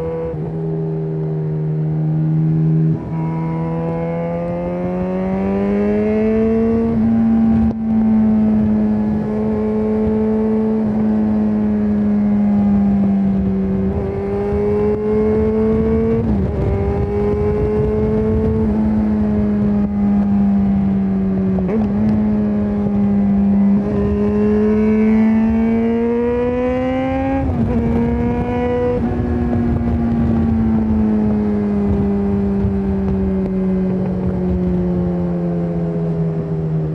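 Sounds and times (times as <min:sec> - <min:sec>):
motorcycle engine revving: 0:00.0 - 0:36.9.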